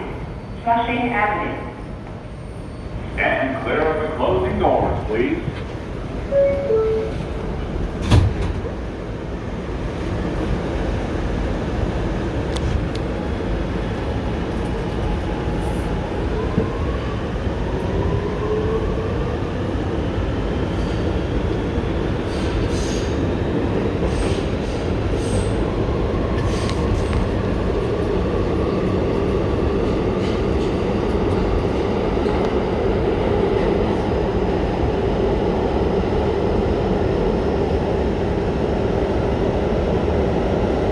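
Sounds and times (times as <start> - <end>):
wheels rumbling on rail: 2.0 - 40.9
train doors shutting thump: 7.8 - 8.8.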